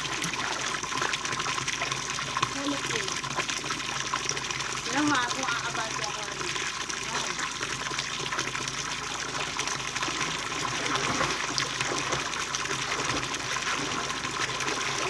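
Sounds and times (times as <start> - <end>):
running water gushing: 0.0 - 15.0.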